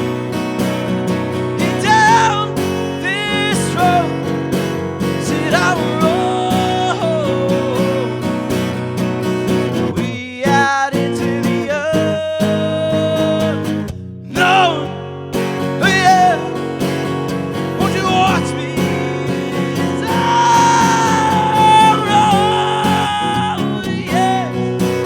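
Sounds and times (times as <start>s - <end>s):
acoustic guitar country song: 0.0s - 25.0s.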